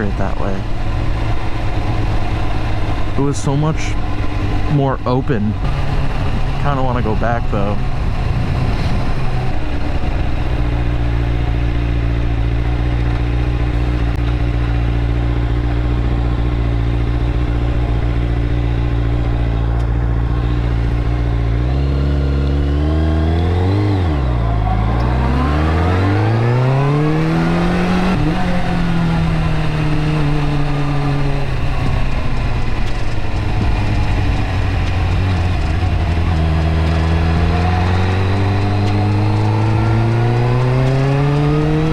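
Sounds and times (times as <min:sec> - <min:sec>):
motorcycle engine accelerating: 0:00.0 - 0:41.9
wind noise: 0:07.8 - 0:13.2, 0:22.8 - 0:41.9.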